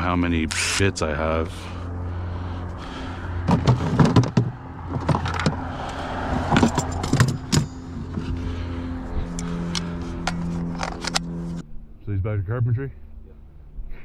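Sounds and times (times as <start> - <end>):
engine-like hum: 0.0 - 14.0
tools clicking and rattling: 3.5 - 8.4, 9.4 - 11.6.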